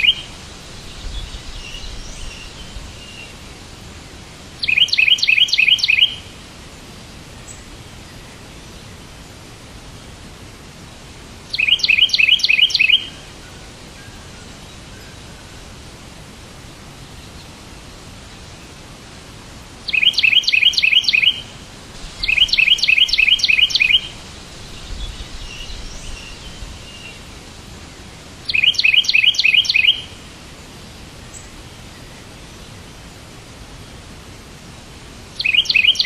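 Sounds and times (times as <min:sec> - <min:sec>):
bird chirping: 0:00.0 - 0:03.4, 0:04.6 - 0:06.3, 0:11.5 - 0:13.2, 0:19.9 - 0:21.5, 0:22.2 - 0:27.3, 0:28.5 - 0:30.2, 0:35.4 - 0:36.0
steady low hiss: 0:00.0 - 0:36.0.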